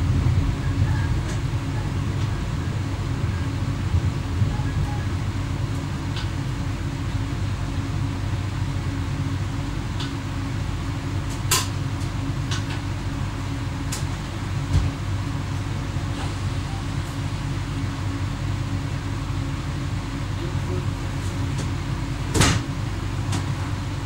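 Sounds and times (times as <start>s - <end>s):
train cab drone: 0.0s - 24.0s.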